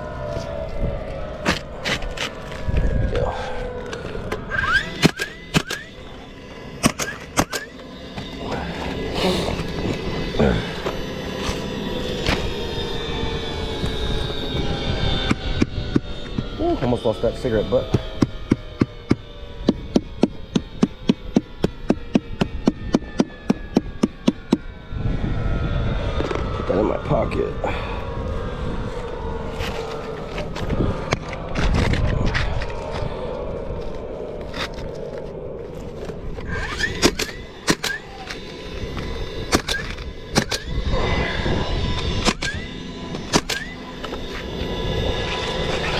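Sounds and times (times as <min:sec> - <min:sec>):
rising motor whine: 0:00.0 - 0:45.9
steady rumble: 0:00.0 - 0:45.9
nail gun shots: 0:37.0 - 0:38.0, 0:43.3 - 0:43.7.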